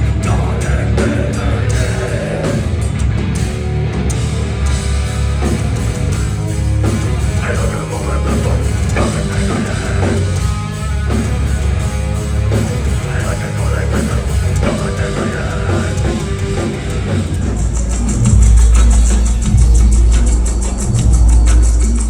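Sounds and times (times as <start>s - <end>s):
heavy metal music: 0.0s - 22.0s.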